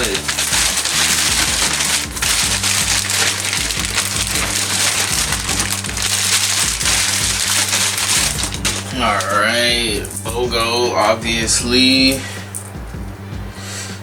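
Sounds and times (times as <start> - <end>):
packaging crinkling: 0.0 - 10.4, 12.1 - 12.8
music with repeating bass line: 0.0 - 14.0.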